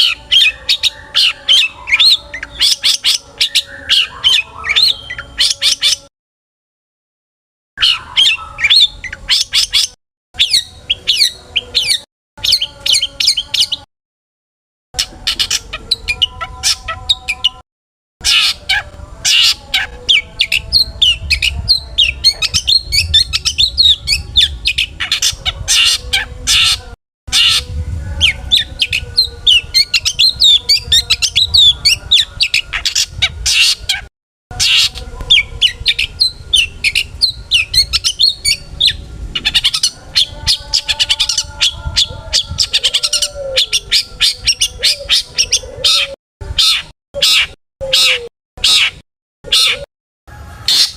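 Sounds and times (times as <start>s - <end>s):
bird singing sharp chirps: 7.8s - 13.9s.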